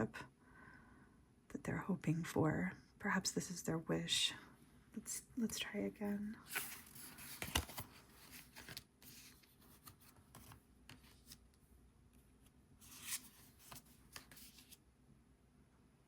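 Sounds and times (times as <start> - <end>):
cards shuffling: 6.4 - 11.5, 12.8 - 14.8.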